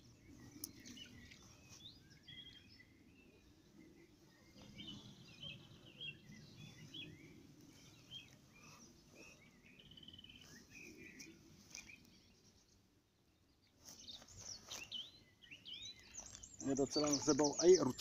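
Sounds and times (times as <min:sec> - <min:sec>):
faint songbirds chirping: 0:00.0 - 0:18.0.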